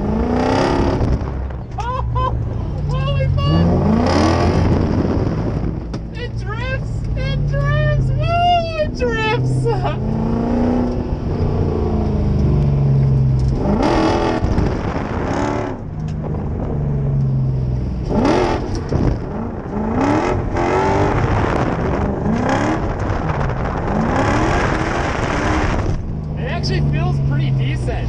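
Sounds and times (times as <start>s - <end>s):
engine revving hard: 0.0s - 1.3s, 3.0s - 5.8s, 13.4s - 15.8s, 18.0s - 28.0s.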